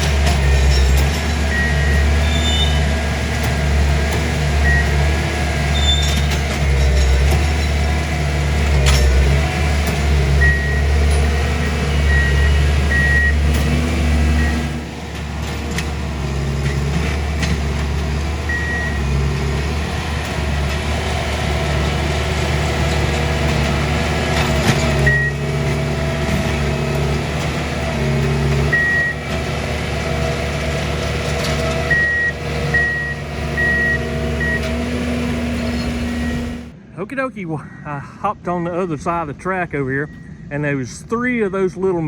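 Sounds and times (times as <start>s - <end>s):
sharp metallic clanks: 0.0s - 1.5s
diesel engines running: 0.0s - 42.0s
high warning beeps: 10.4s - 10.9s, 12.1s - 13.4s, 25.1s - 25.4s, 28.7s - 29.2s, 31.9s - 34.7s, 35.7s - 36.6s, 40.0s - 40.4s.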